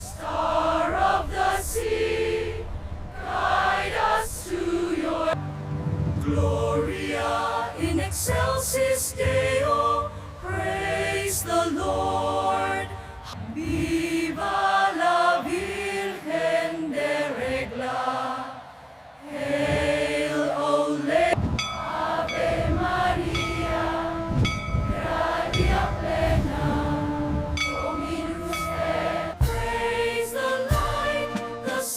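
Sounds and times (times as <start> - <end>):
choir singing hymn-like notes: 0.0 - 31.9
musical accompaniment: 5.3 - 14.7, 21.4 - 31.9.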